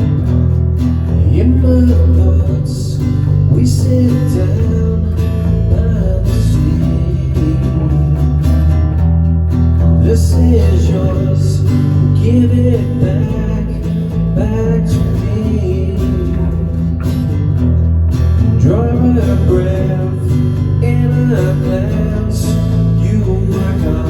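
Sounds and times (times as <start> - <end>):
bass notes: 0.0 - 24.0
strummed acoustic guitar: 0.0 - 24.0.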